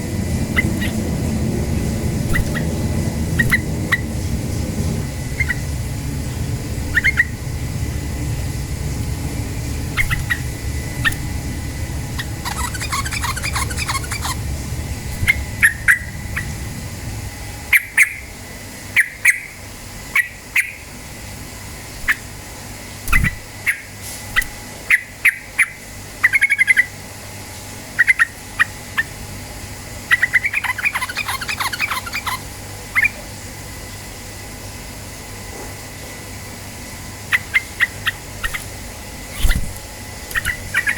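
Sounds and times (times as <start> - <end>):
bird calling sharp notes: 0.0 - 1.2, 2.1 - 4.2, 6.9 - 7.4, 9.9 - 11.4, 12.1 - 14.5, 30.1 - 33.2, 37.3 - 40.9
low steady rumble: 0.0 - 18.6
bird rattling chatter: 0.3 - 4.2, 9.9 - 11.4, 12.1 - 14.5, 37.3 - 40.9.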